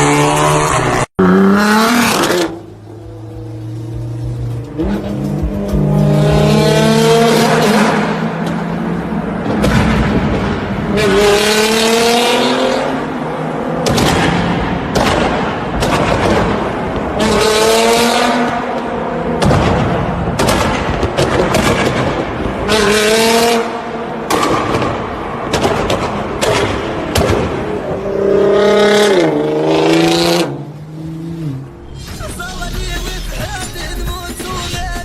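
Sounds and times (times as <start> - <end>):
car engines revving hard: 0.0 - 31.9
exhaust pops and bangs: 13.8 - 17.1, 19.4 - 22.7, 24.3 - 27.7.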